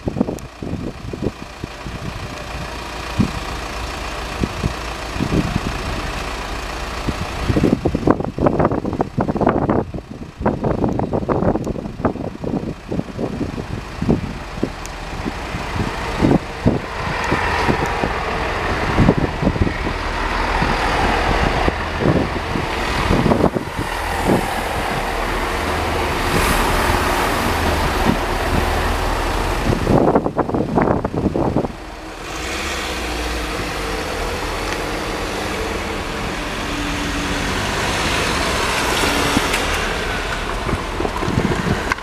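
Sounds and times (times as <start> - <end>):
diesel train passing: 0.0 - 42.0.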